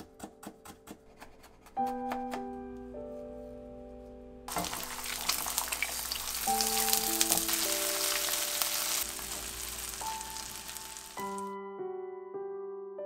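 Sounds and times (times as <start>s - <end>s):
food sizzling in frying pan: 4.5s - 11.5s.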